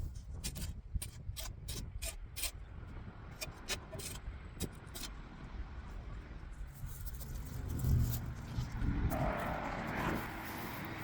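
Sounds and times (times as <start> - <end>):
shovel scraping dirt off stone: 0.0 - 2.6, 3.4 - 5.1.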